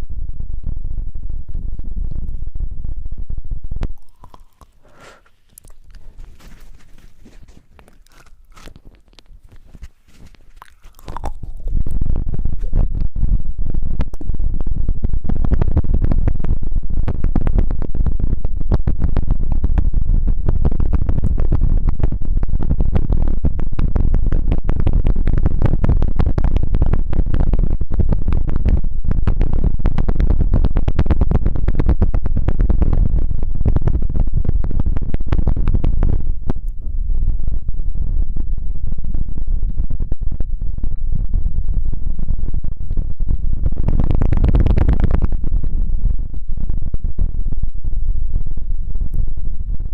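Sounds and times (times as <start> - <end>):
rubbing and scratching on microphone: 3.7 - 13.4, 42.8 - 45.9.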